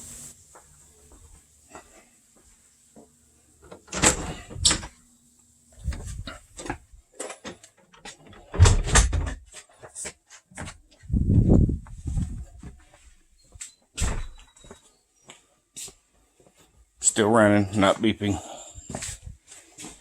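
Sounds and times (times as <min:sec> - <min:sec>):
knocks bumps and rattles: 0:08.0 - 0:09.5, 0:10.6 - 0:12.8.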